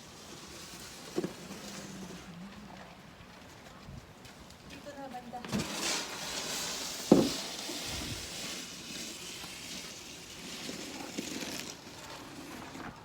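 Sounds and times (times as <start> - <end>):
snow shovel scraping snow: 5.5 - 13.0.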